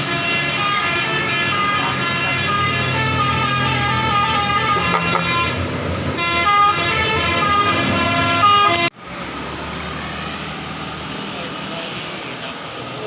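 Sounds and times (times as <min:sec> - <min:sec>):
multi-tone air horn melody: 0:00.0 - 0:05.6, 0:06.2 - 0:08.9
diesel engines rumbling: 0:00.0 - 0:13.0
traffic noise: 0:00.0 - 0:13.0.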